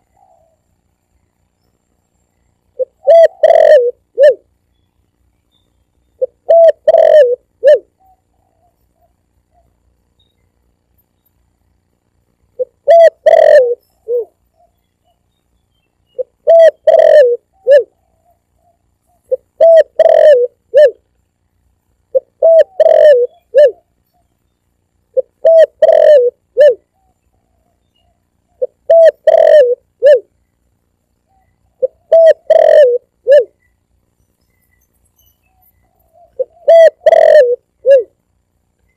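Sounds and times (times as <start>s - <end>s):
dove cooing: 0.0s - 0.7s, 2.7s - 4.5s, 6.2s - 9.8s, 12.6s - 15.2s, 16.2s - 21.0s, 22.1s - 24.2s, 25.1s - 30.3s, 31.3s - 33.7s, 35.5s - 38.2s.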